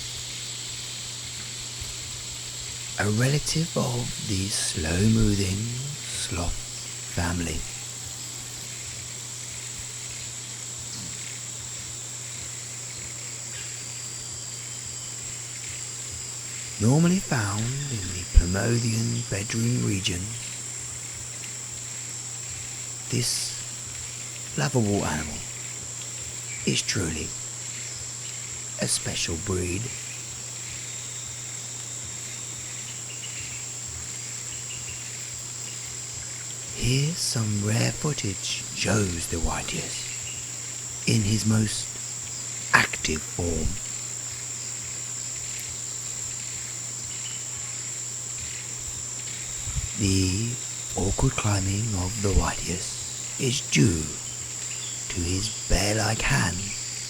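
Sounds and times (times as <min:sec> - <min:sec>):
insect chorus trilling: 0:00.0 - 0:57.0
low hum: 0:13.1 - 0:47.8.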